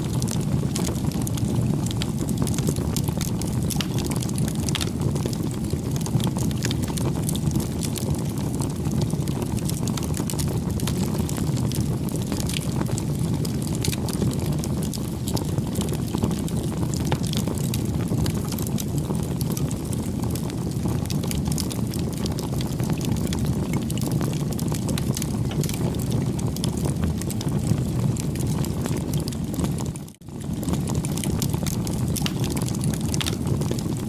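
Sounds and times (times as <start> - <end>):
burning wood crackling and popping: 0.0 - 34.0
campfire flame rumble: 0.0 - 34.0.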